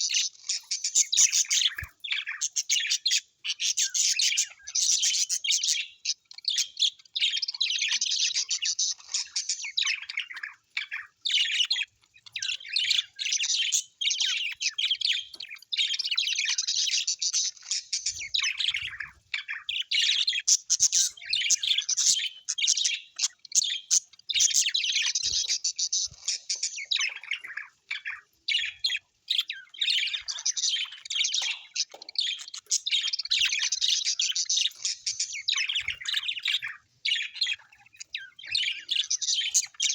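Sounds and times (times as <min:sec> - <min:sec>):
birds chirping and chattering: 0:00.0 - 0:39.9
bird squawk: 0:15.8 - 0:39.9.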